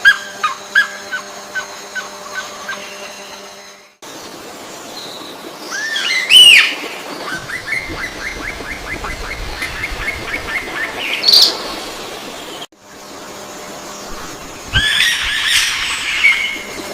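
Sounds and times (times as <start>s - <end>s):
loud arching bird calls: 14.7s - 16.8s.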